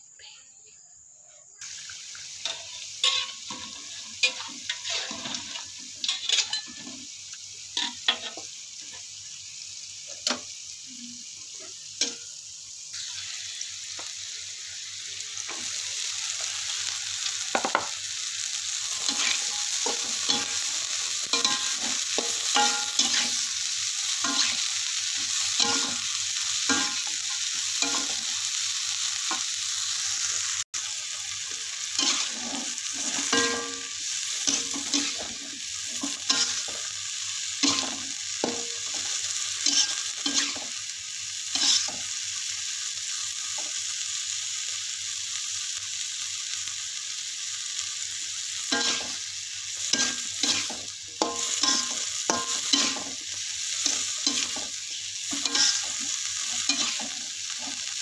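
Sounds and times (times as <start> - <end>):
oil sizzling in a wok: 0.0 - 58.0
metal spatula scraping a wok: 2.5 - 6.9, 19.0 - 23.5, 31.9 - 35.4, 37.6 - 40.7, 41.5 - 42.0, 48.7 - 49.2, 49.8 - 57.9.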